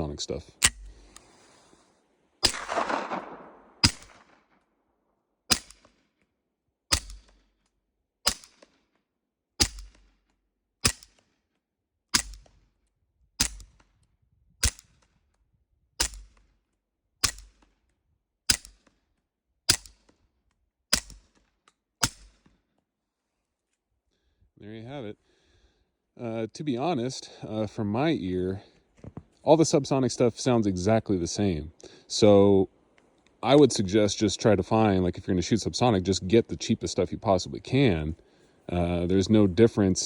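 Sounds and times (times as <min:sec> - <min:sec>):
suppressed pistol shots: 0:02.4 - 0:04.6, 0:05.5 - 0:06.0, 0:06.9 - 0:07.4.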